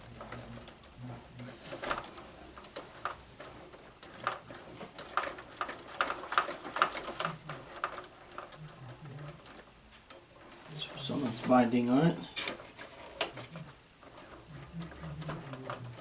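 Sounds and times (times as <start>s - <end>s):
small parts and tools clicking: 1.8s - 10.7s.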